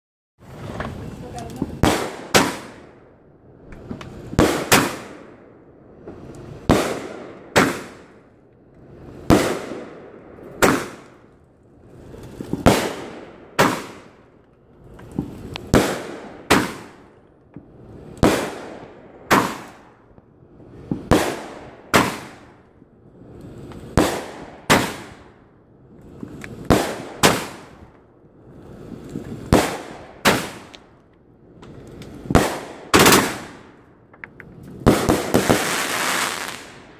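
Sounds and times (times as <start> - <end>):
fireworks bangs echoing: 0.5 - 3.0, 3.9 - 5.5, 6.1 - 8.2, 9.2 - 11.2, 12.4 - 14.2, 15.2 - 17.1, 18.2 - 20.0, 20.9 - 22.6, 23.9 - 25.4, 26.6 - 27.9, 29.4 - 30.8, 32.2 - 33.8, 34.8 - 36.9.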